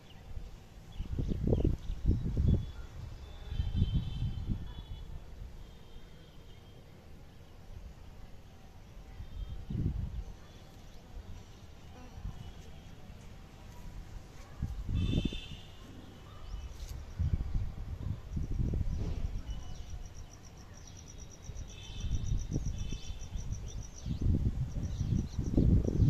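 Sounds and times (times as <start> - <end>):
low rumbling gusts: 23.4 - 26.0.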